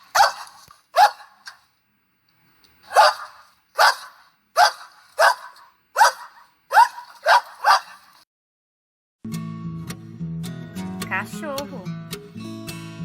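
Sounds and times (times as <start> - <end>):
dog barking: 0.0 - 1.6, 2.9 - 8.2.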